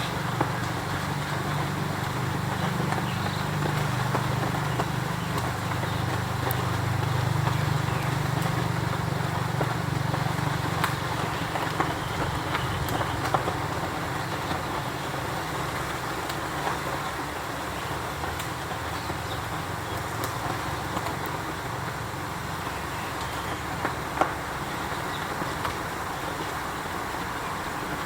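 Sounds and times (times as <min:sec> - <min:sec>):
outdoor background noise: 0:00.0 - 0:28.0.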